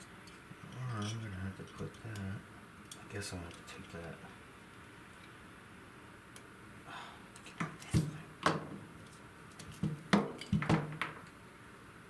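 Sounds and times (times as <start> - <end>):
tools clicking and knocking on workbench: 9.6 - 11.3.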